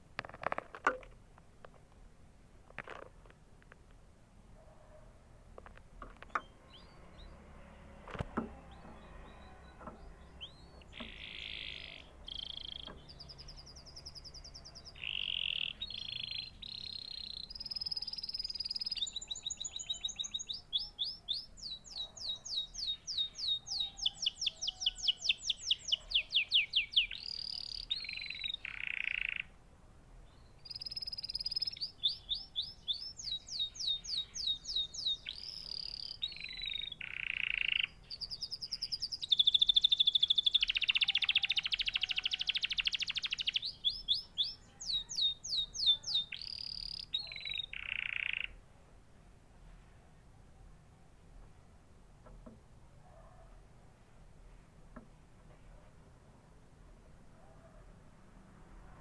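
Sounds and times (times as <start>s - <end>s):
canary singing trills: 6.2s - 29.6s, 30.2s - 48.7s.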